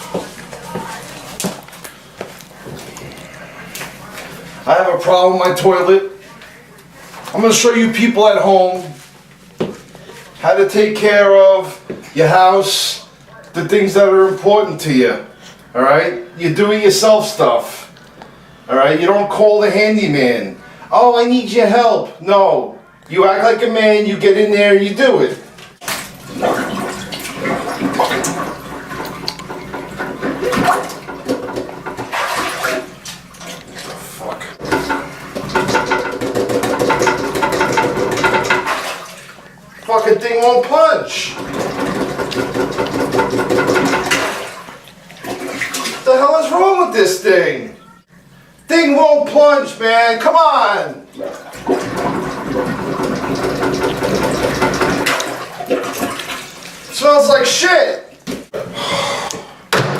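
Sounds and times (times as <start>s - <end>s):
water sloshing and splashing: 25.7s - 46.2s, 51.0s - 57.0s
plunger in toilet bowl: 25.8s - 39.9s, 41.2s - 46.1s, 51.1s - 56.9s.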